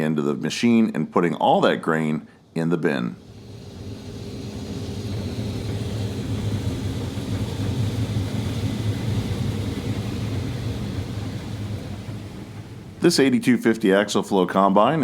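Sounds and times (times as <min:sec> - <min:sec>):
combine harvester engine hum: 0:03.2 - 0:14.2.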